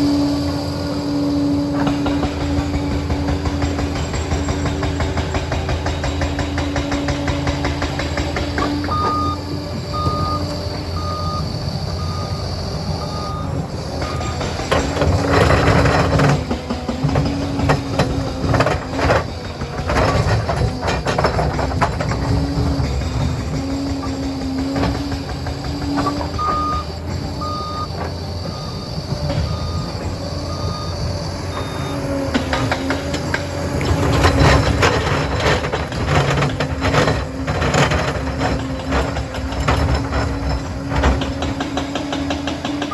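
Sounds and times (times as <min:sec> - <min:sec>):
dozer diesel engine under load: 0:00.0 - 0:42.9
clattering knocks: 0:01.8 - 0:11.2, 0:13.2 - 0:42.9
reversing alarm beeping: 0:08.4 - 0:16.5, 0:24.8 - 0:33.3.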